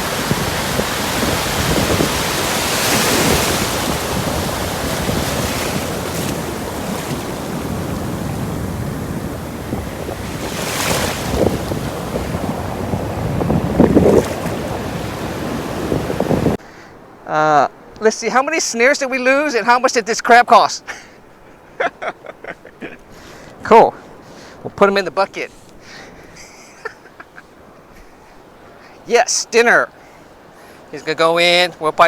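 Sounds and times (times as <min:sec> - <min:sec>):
wind buffeting microphone: 0:00.0 - 0:17.2, 0:22.8 - 0:26.6
surf breaking on beach: 0:00.0 - 0:20.0.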